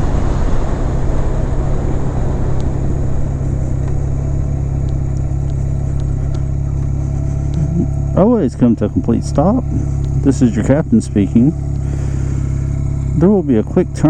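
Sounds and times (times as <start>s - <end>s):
wind rush on microphone: 0.0s - 8.1s
motorcycle engine running: 0.0s - 14.0s.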